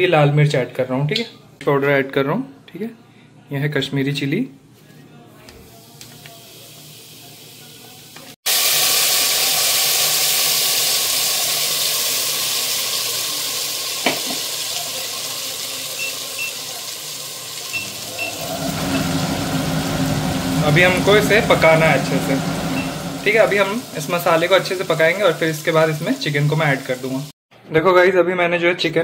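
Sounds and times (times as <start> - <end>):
spice paste sizzling in hot oil: 5.7 - 21.3, 22.2 - 27.3.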